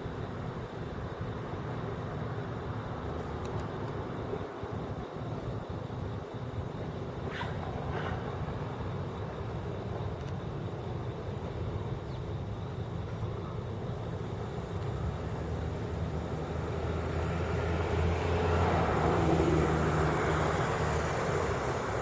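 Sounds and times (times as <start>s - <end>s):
road traffic hum: 0.0s - 22.0s
vehicle passing close by: 15.0s - 22.0s.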